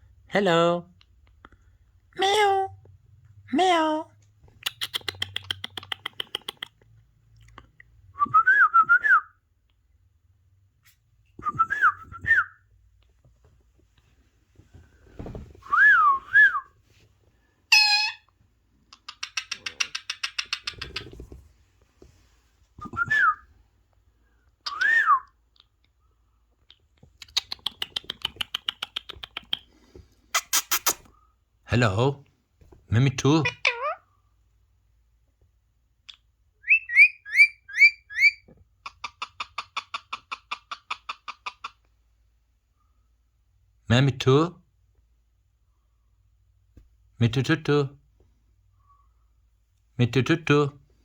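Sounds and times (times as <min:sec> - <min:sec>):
parrot whistling and squawking: 0:17.7 - 0:18.3, 0:33.4 - 0:34.0, 0:36.6 - 0:41.8.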